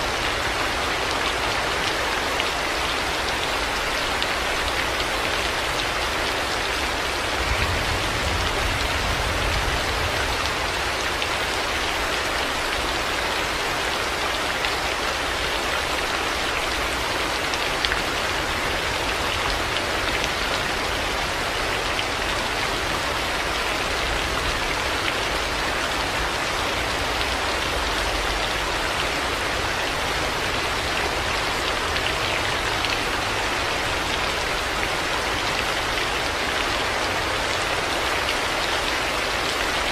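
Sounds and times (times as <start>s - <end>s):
heavy rain on hard surfaces: 0.0s - 39.9s.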